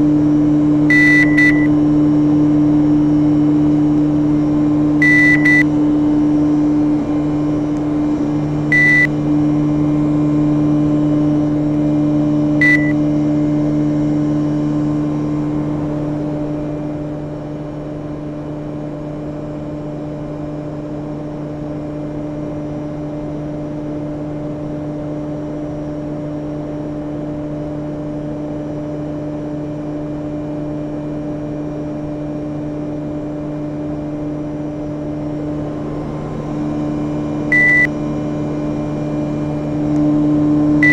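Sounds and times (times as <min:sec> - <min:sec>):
short high beeps: 0:00.9 - 0:01.7, 0:05.0 - 0:05.6, 0:08.7 - 0:09.1, 0:12.6 - 0:12.9, 0:37.5 - 0:37.9.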